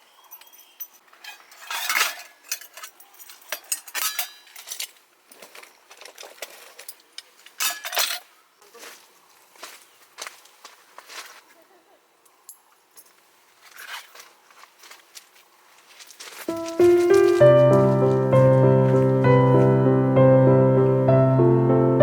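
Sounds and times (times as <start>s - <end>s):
metal camping gear clinking: 0.2s - 8.3s, 12.5s - 14.3s.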